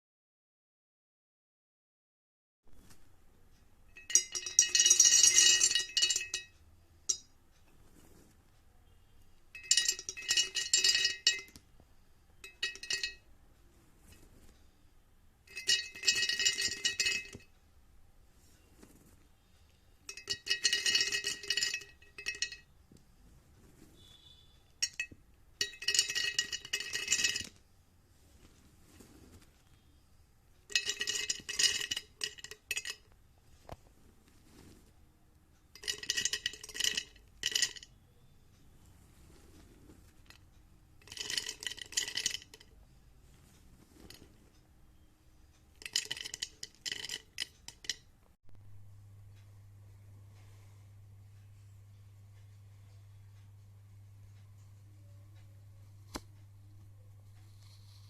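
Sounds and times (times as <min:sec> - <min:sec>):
glassy clinking and ringing: 0:03.9 - 0:07.3, 0:09.5 - 0:11.6, 0:12.4 - 0:13.3, 0:15.5 - 0:17.5, 0:20.1 - 0:22.7, 0:24.0 - 0:27.6, 0:30.7 - 0:33.1, 0:35.8 - 0:38.0, 0:41.0 - 0:42.7, 0:45.8 - 0:48.0.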